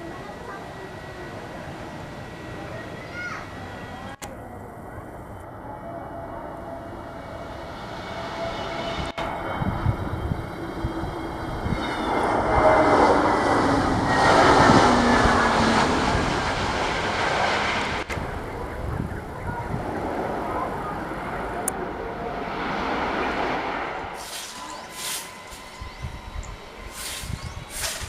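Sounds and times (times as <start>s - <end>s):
high jet engine whine: 0.0s - 28.0s
jet airliner roar: 0.0s - 28.0s.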